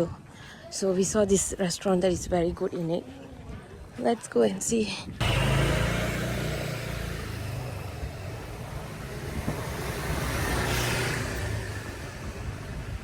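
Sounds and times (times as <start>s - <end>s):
vehicle engine running: 5.2s - 10.8s
road noise: 5.2s - 13.0s.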